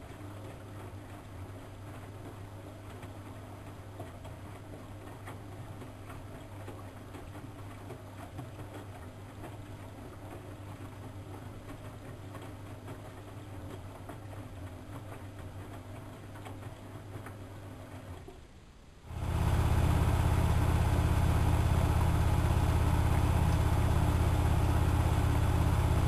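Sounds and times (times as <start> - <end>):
washing machine motor hum: 19.1 - 26.0.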